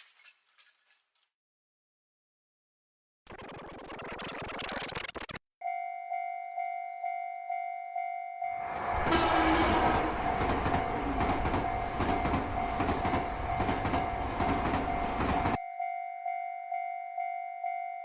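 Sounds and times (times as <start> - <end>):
crossing warning bell dinging: 5.6 - 18.0.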